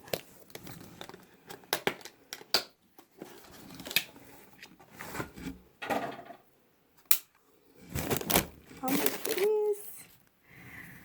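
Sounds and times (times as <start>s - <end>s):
wrapping rustling: 7.8s - 10.2s
packaging clicks: 8.0s - 9.6s.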